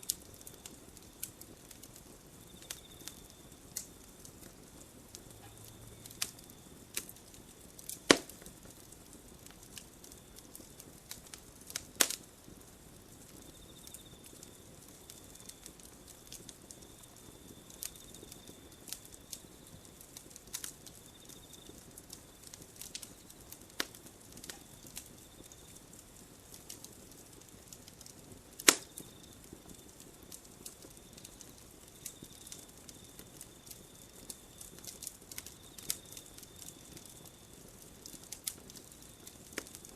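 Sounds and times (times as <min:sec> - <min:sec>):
campfire crackling: 0:00.0 - 0:39.9
loud sharp fire pops: 0:06.0 - 0:21.0, 0:21.7 - 0:37.3.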